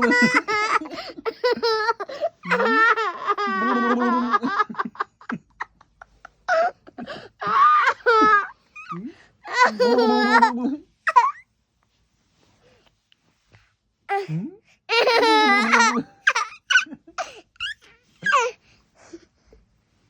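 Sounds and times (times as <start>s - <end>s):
toddler laughing: 0.0s - 4.5s, 9.5s - 10.5s, 14.9s - 18.5s.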